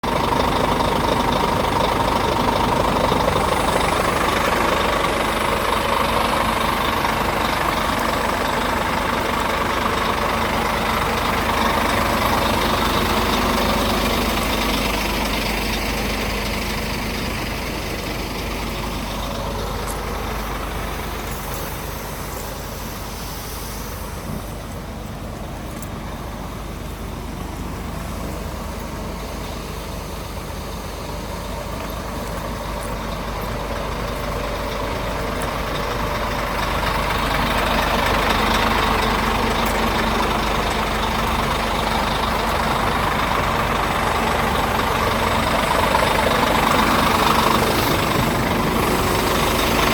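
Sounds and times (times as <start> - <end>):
diesel truck engine idling: 0.0 - 49.9.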